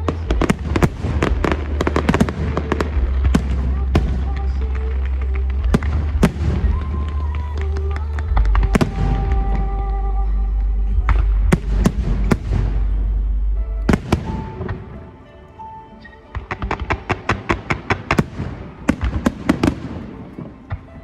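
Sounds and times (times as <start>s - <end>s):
low rumble: 0.0s - 15.0s
music playing: 0.0s - 21.0s
fireworks bangs and crackles: 0.1s - 9.6s, 13.9s - 15.0s, 16.4s - 21.0s.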